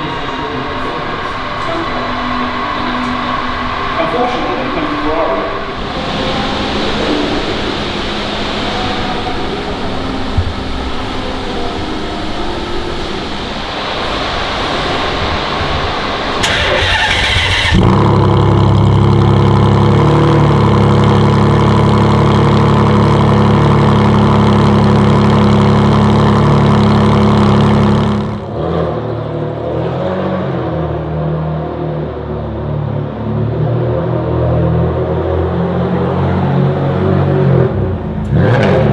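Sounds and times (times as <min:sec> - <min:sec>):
car engine idling: 0:00.0 - 0:28.6
engine starter: 0:16.4 - 0:19.2.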